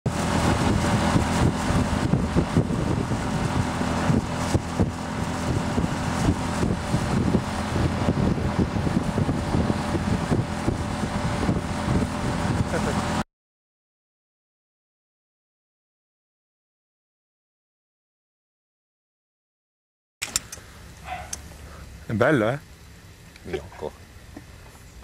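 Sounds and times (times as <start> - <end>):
boat motor humming: 0.1 - 13.2, 20.2 - 25.0
wind buffeting microphone: 0.1 - 13.2.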